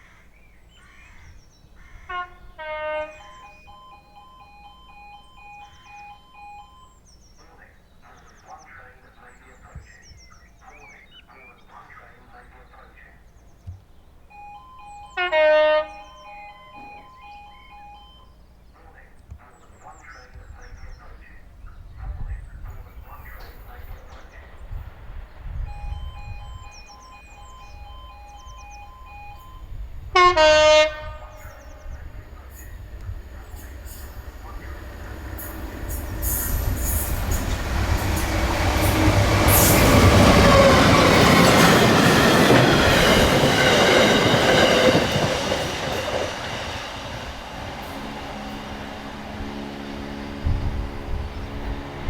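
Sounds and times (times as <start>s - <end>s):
train horn blast: 2.0s - 3.4s, 15.0s - 17.1s, 28.5s - 41.8s, 44.1s - 52.0s
faint pulsing beeps: 3.1s - 8.6s, 14.2s - 19.0s, 25.5s - 30.1s
diesel train rumble passing: 22.4s - 52.0s.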